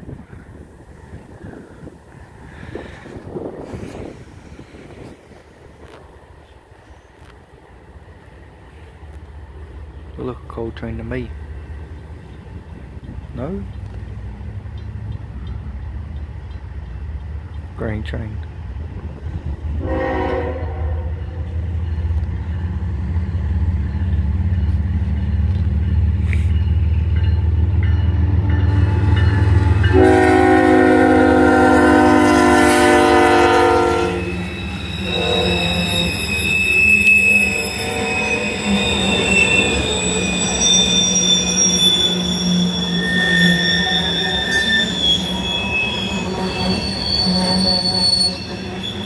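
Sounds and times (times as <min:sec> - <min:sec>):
diesel locomotive engine rumble: 0:00.0 - 0:49.0
train horn blast: 0:19.8 - 0:21.4, 0:28.6 - 0:36.3, 0:37.3 - 0:39.6
wheel flanges squealing: 0:33.7 - 0:49.0.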